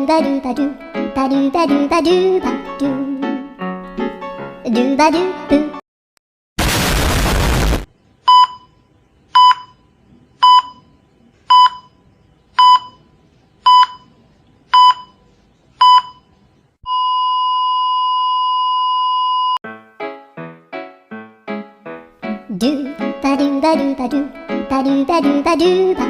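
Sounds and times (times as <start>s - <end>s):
static hiss: 6.6s - 7.9s
heart monitor beeps: 8.3s - 8.8s, 9.4s - 10.9s, 11.5s - 12.0s, 12.6s - 13.0s, 13.6s - 15.2s, 15.8s - 16.3s, 16.9s - 19.6s
heart monitor flatline tone: 16.9s - 19.6s.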